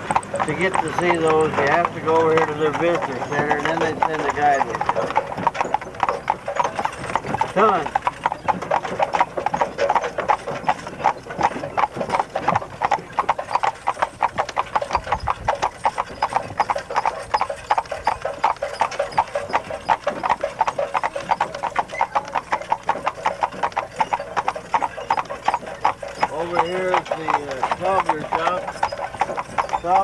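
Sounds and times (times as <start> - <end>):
horse hooves clip-clopping: 0.0 - 30.0.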